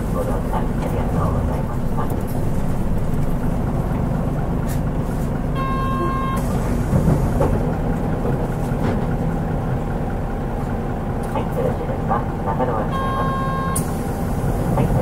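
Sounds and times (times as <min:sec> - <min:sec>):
bus engine and road rumble: 0:00.0 - 0:15.0
short electronic beep: 0:05.6 - 0:06.4, 0:12.9 - 0:13.8.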